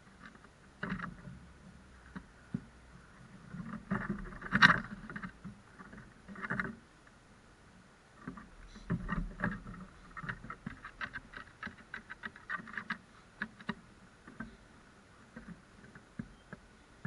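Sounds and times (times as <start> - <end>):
crows pecking on hard surface: 8.2 - 14.6.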